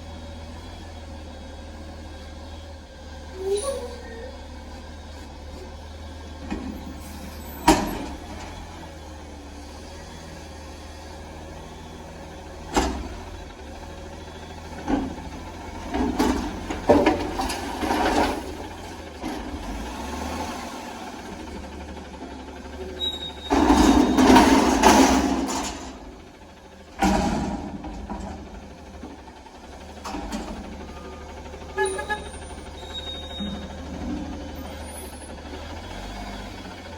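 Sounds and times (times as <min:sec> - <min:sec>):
garbage truck engine running: 0:00.0 - 0:36.9.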